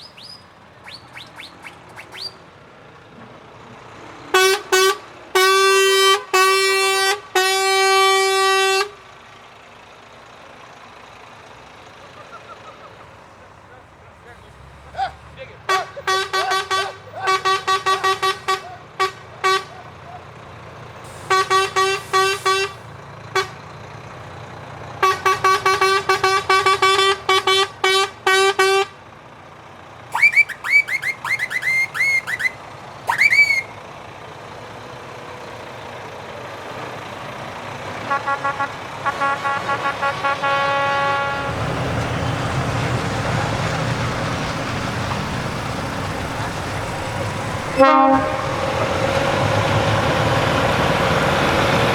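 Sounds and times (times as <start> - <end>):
truck engines running: 0.0 - 51.9
truck air horn blasts: 4.3 - 9.2, 15.6 - 20.2, 21.0 - 23.7, 24.9 - 29.0, 30.1 - 33.8, 38.0 - 44.1, 46.2 - 51.4
high-pitched bending horn: 47.7 - 48.9.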